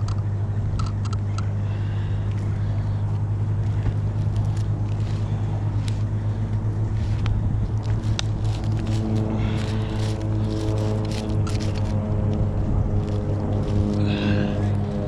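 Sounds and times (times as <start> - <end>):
chainsaw idling: 1.8 - 12.0.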